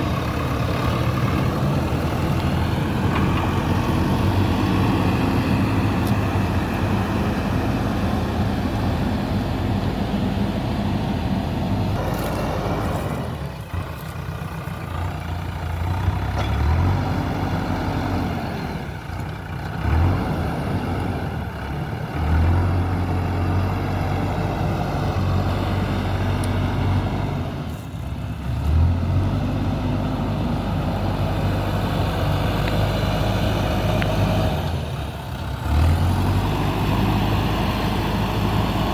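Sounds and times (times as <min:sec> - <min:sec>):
diesel engine revving: 0:00.0 - 0:38.9.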